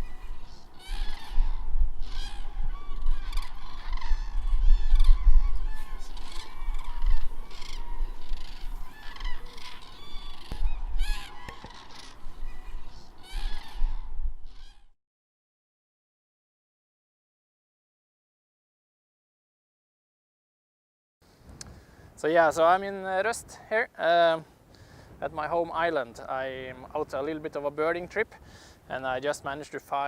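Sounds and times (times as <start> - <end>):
waterbirds calling harshly: 0.0 - 14.9
wind on microphone: 0.0 - 15.0.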